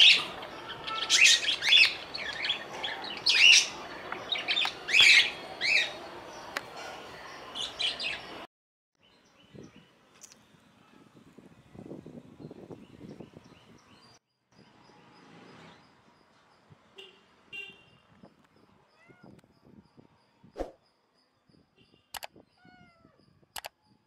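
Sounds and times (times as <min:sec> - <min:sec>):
small birds chirping: 0:11.5 - 0:24.0.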